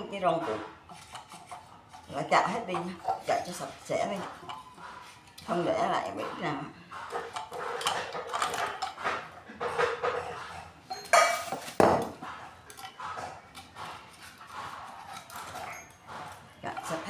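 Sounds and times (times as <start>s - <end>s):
knife blade scraping metal: 0.8s - 2.1s, 13.6s - 16.4s.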